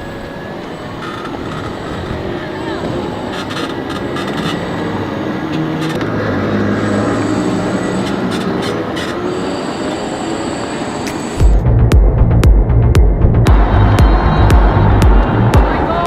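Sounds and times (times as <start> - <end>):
crowd noise: 0.0 - 11.6, 12.9 - 16.0
electric car drive whining: 0.0 - 16.0
road noise: 0.0 - 16.0
loud low pulsing music: 11.4 - 16.0.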